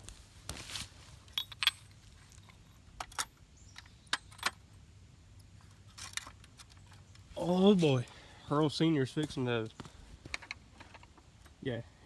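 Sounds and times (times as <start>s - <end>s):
small metal parts clinking: 1.3s - 3.4s.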